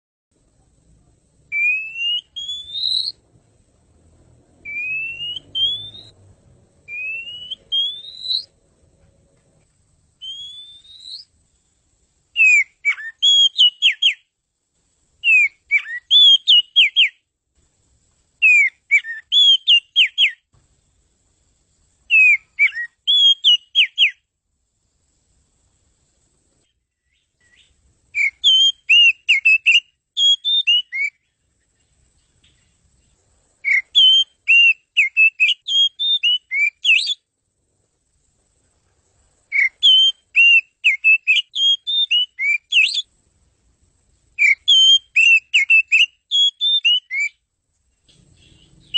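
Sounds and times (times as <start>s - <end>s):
bird singing: 1.5s - 3.4s, 4.6s - 8.6s, 10.2s - 11.8s, 12.4s - 14.3s, 15.2s - 17.3s, 18.4s - 20.5s, 22.1s - 24.3s, 26.7s - 37.3s, 39.5s - 43.1s, 44.4s - 48.9s.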